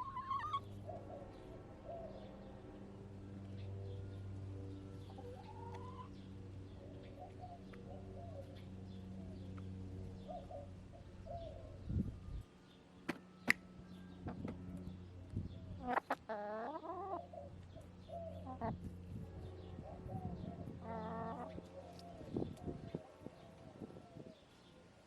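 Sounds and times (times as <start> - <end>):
drawn-out hen call: 0.0 - 0.7, 5.1 - 6.2, 15.8 - 17.5, 19.8 - 22.1
hens clucking softly: 0.0 - 0.7, 5.1 - 6.2, 15.8 - 18.9, 19.9 - 23.7
steady low hum: 0.0 - 25.0.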